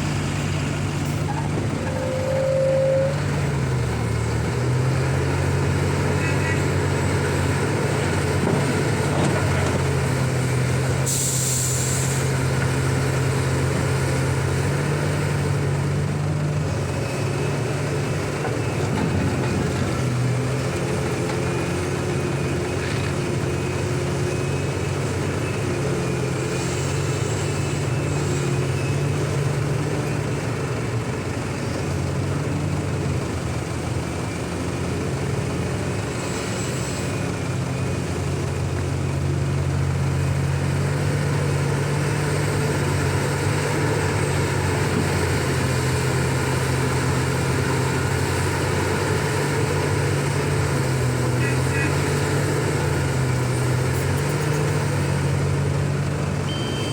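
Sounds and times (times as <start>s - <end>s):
excavator diesel engine under load: 0.0s - 56.9s
air hiss burst: 11.1s - 12.2s.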